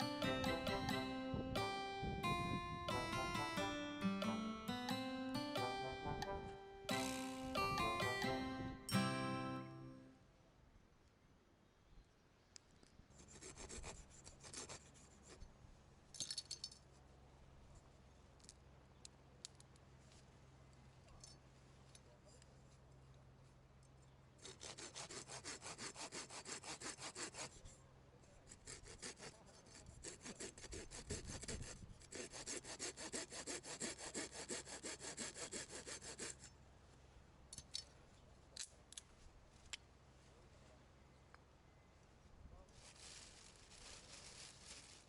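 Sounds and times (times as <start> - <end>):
hand saw strokes: 24.4 - 27.7, 28.5 - 36.5.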